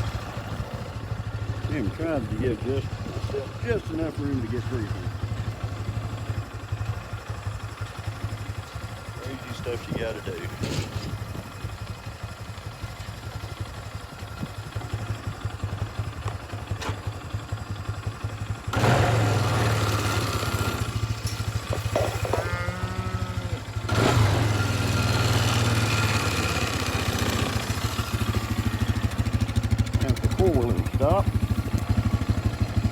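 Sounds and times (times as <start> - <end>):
atv engine running: 0.0 - 32.9
cow lowing: 21.8 - 23.7.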